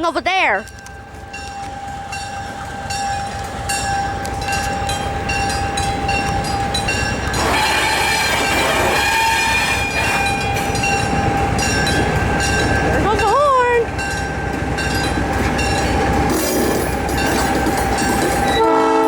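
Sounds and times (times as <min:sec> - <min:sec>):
diesel locomotive approaching: 0:00.0 - 0:19.0
locomotive bell ringing: 0:00.0 - 0:19.0
locomotive horn: 0:07.3 - 0:10.7, 0:18.5 - 0:19.0.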